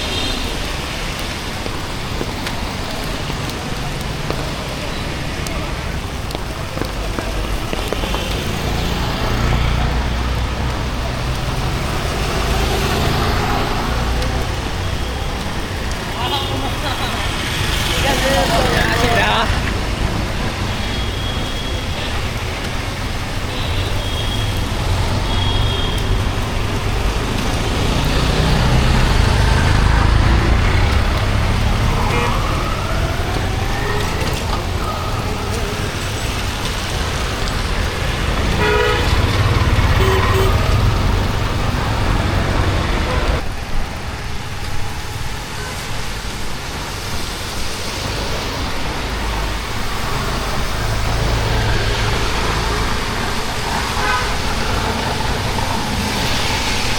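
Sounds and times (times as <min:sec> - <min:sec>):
passing vehicles rumbling: 0:00.0 - 0:56.9
rain hissing on wet road: 0:00.0 - 0:56.9
car horn toot: 0:38.6 - 0:39.2, 0:40.0 - 0:40.8.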